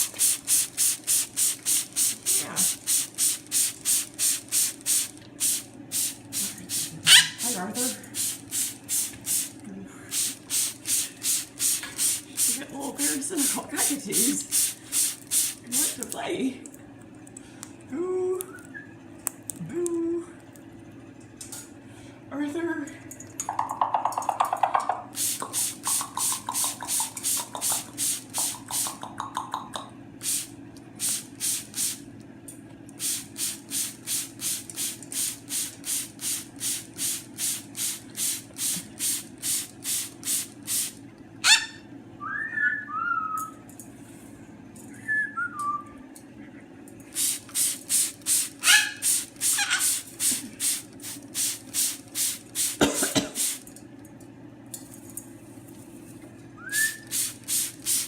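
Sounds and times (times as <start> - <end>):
short hissing ticks: 25.2 - 29.0
cockatoo whistled chirps: 41.5 - 43.6, 56.6 - 57.1.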